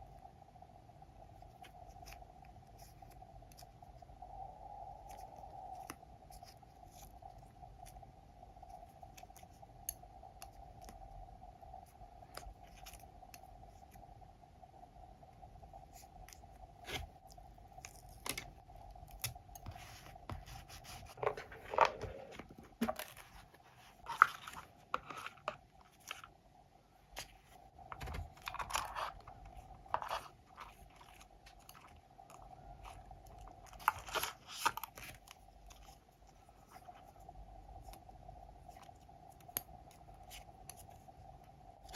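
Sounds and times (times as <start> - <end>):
faint steady hum: 0.0 - 41.9
paper crinkling and rustling: 19.2 - 26.4, 27.1 - 37.1.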